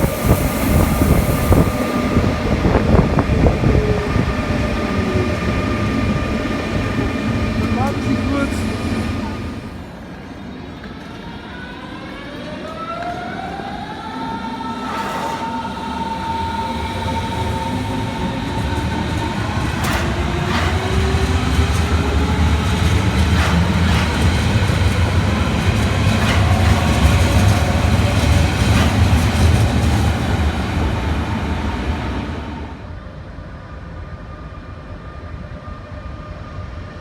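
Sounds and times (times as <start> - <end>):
train wheels rumbling: 0.0 - 10.3, 14.6 - 32.9
traction motors whining: 13.7 - 31.4
wheels clacking over rail joints: 17.2 - 30.5.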